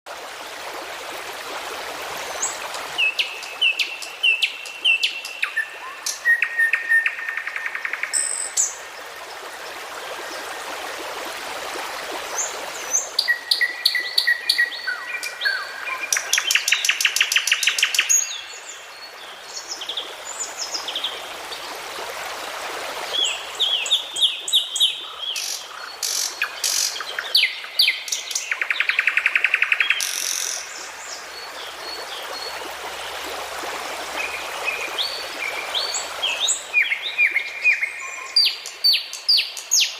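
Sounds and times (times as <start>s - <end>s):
songbirds singing and calling: 2.3s - 8.8s, 12.4s - 21.2s, 23.1s - 32.5s, 34.2s - 39.9s.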